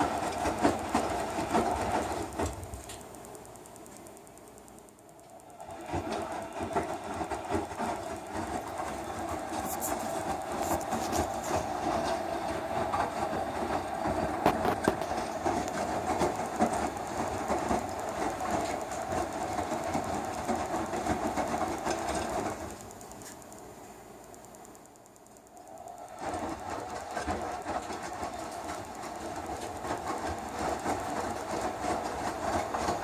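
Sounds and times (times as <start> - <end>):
washing machine churning: 0.0 - 33.0.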